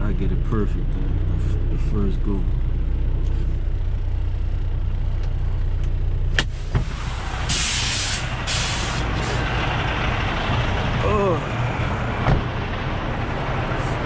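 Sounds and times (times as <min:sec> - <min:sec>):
diesel truck engine idling: 0:00.0 - 0:14.0
air brake hiss: 0:06.4 - 0:09.4.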